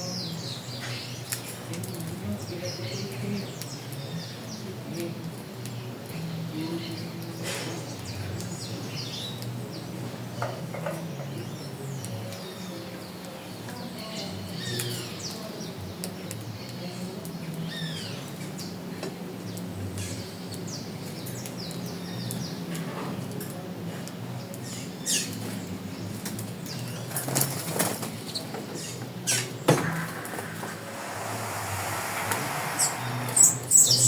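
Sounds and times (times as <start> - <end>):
small birds chirping: 0.0 - 23.3, 24.0 - 27.3, 28.0 - 34.0
steady low hum: 29.7 - 34.0.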